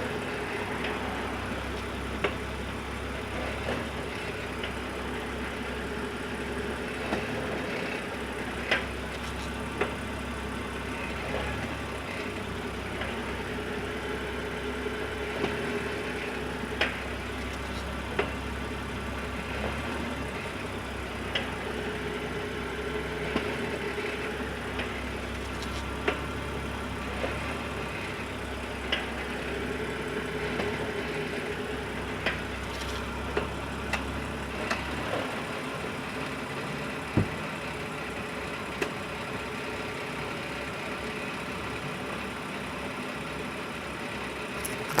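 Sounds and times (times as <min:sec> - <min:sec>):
car running rumble: 0:00.0 - 0:45.0.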